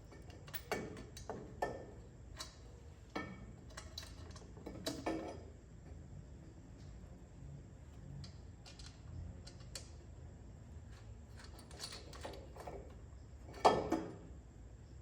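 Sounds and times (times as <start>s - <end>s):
tools and parts clicking: 0.1s - 5.4s, 8.1s - 10.0s, 11.3s - 14.1s.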